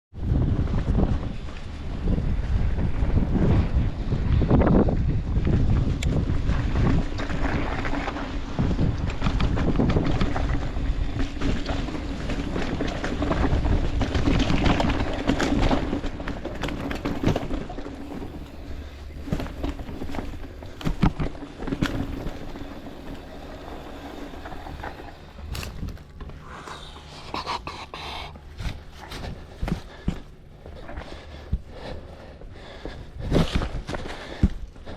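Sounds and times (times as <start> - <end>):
wind rushing over microphone: 0.1 - 21.2.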